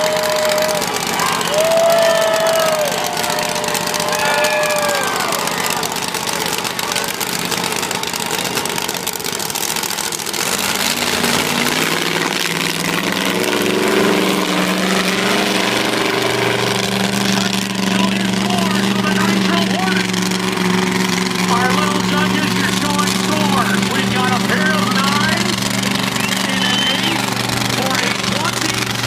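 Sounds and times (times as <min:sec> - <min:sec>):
monster truck engine revving: 0:00.0 - 0:29.0.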